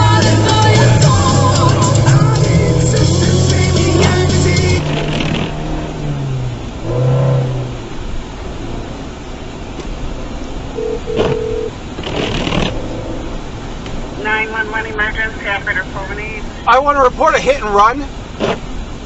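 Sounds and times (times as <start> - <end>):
engine and tyre rumble: 0.0 - 19.0
car horn honks: 10.8 - 11.8.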